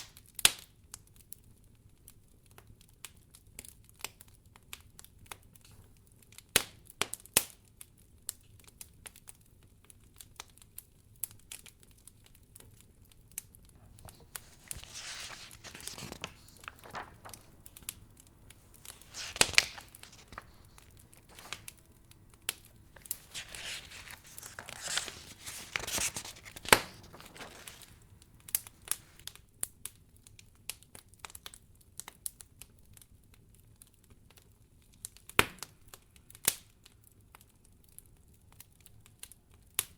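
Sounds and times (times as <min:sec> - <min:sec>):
soft rustling: 0:13.8 - 0:29.2
wood fire crackling: 0:15.5 - 0:29.3.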